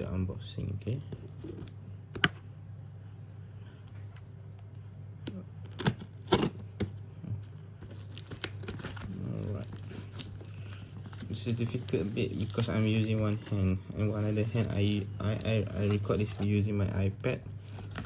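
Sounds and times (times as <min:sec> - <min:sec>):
steady low hum: 0:00.0 - 0:18.0
cardboard box being opened: 0:07.9 - 0:16.5.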